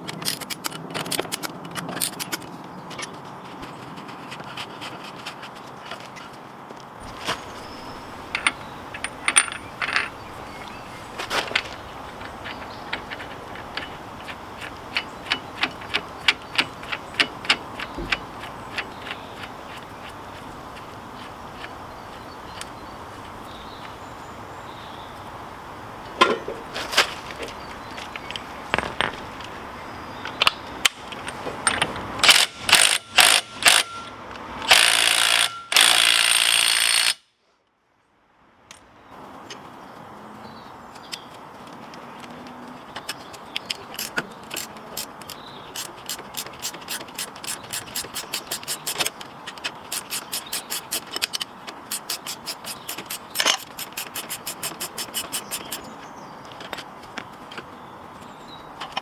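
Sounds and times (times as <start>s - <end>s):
metal tools clicking and knocking: 0.0s - 3.2s, 7.0s - 20.4s, 27.5s - 29.6s, 30.2s - 37.2s, 43.0s - 57.7s
ratchet clicking: 32.2s - 34.0s, 34.6s - 37.3s, 44.0s - 49.2s, 49.8s - 55.9s.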